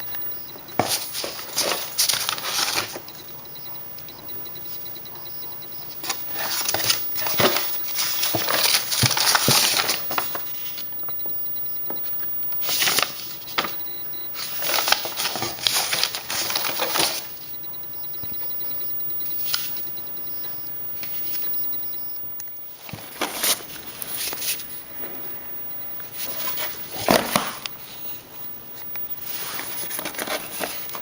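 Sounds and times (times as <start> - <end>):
paper rustling and crinkling: 0.1 - 4.9, 5.8 - 10.9, 12.6 - 17.5, 22.8 - 24.9, 26.0 - 31.0.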